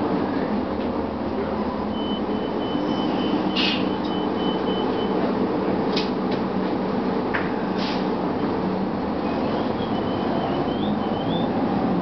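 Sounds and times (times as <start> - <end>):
bus diesel engine drone: 0.0 - 12.0
short air hisses: 3.5 - 3.9, 7.7 - 8.2.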